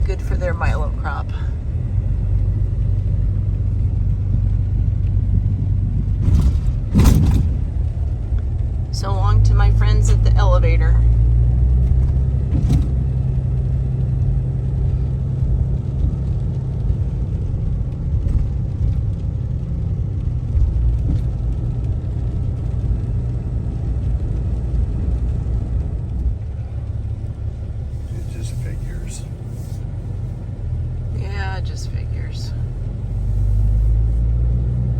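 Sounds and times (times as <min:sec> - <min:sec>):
truck engine and road rumble: 0:00.0 - 0:34.9.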